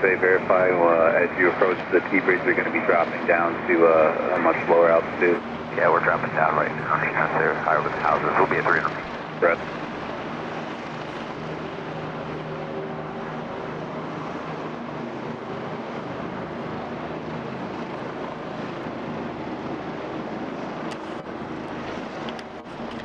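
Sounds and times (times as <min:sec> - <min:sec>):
helicopter rotors and engines droning: 0:00.0 - 0:23.0
faint clicks: 0:22.2 - 0:23.0.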